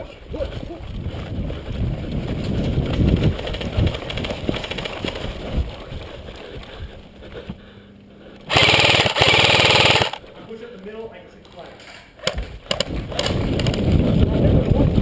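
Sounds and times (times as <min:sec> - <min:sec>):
running footsteps: 0:00.0 - 0:10.6
airsoft gun full-auto burst: 0:08.5 - 0:10.2.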